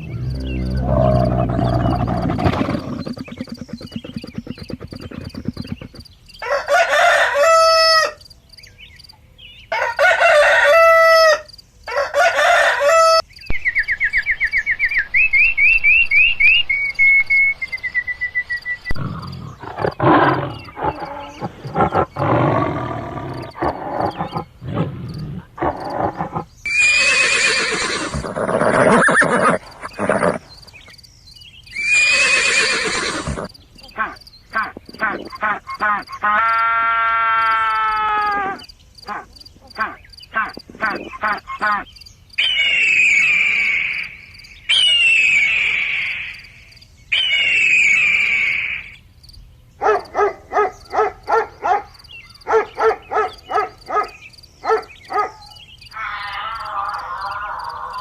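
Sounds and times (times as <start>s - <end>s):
animal growling: 0.0s - 6.0s, 18.9s - 26.6s, 28.0s - 30.5s
rapid short animal calls: 0.0s - 6.0s, 31.8s - 36.0s
rooster crowing: 6.4s - 8.2s, 9.7s - 13.2s.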